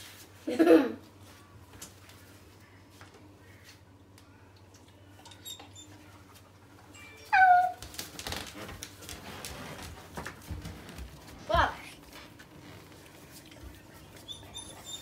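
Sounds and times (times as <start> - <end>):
dog yelping: 7.3 - 7.8, 14.2 - 15.0
rustling and scuffling: 7.6 - 14.4.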